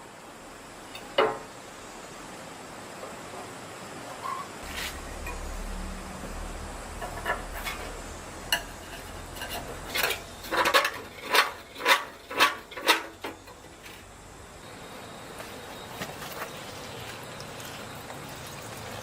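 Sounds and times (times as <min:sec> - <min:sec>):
metal clanking on metal: 0:08.5 - 0:14.0.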